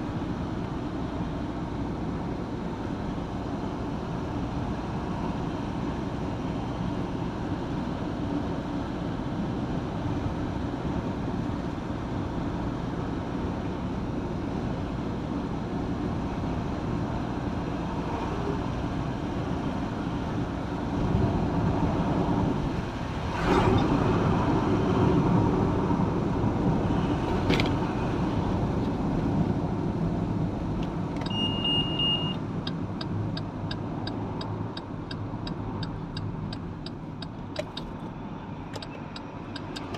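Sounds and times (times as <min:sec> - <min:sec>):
car road and engine noise: 0:00.0 - 0:39.9
turn signal ticking: 0:30.7 - 0:39.9
short beep: 0:31.2 - 0:32.4
sharp clicks: 0:38.7 - 0:39.9.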